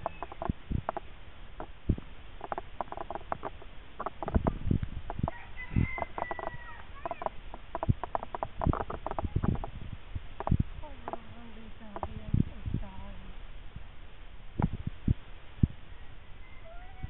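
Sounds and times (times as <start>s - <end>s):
rooster crowing: 5.2s - 7.3s, 15.9s - 17.0s.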